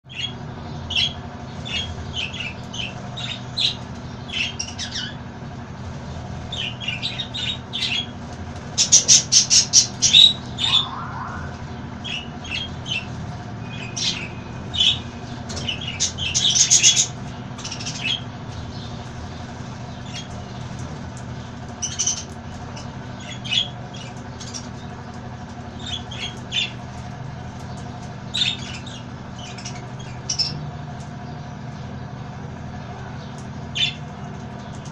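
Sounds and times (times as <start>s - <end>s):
steady low hum: 0.1s - 34.9s
parrots squawking and chirping: 8.8s - 18.3s.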